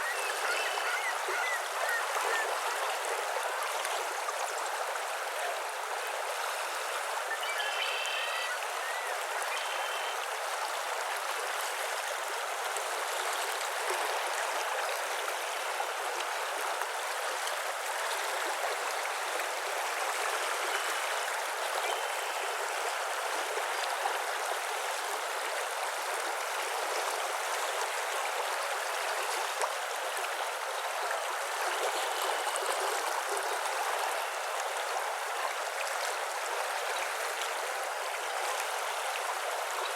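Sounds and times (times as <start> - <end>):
faint bird calls: 0.0 - 2.8, 7.3 - 10.3
flowing water rushing: 0.0 - 39.9.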